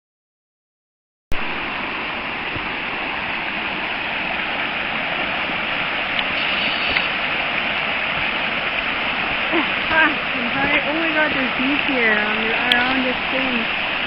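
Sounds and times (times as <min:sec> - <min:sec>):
floodwater rushing: 0:01.3 - 0:14.0.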